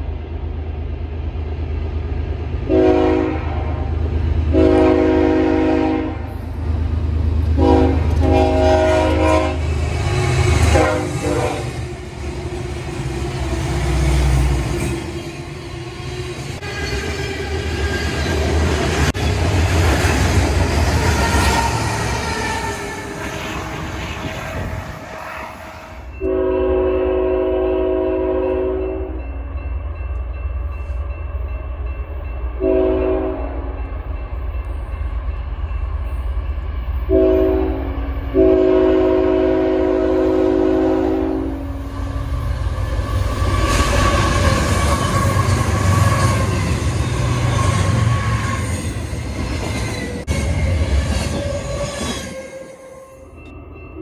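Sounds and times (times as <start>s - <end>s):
train rumble: 0.0s - 54.0s
train air horn blasts: 2.7s - 6.4s, 7.6s - 11.8s, 24.6s - 29.2s, 32.6s - 33.8s, 37.1s - 41.8s.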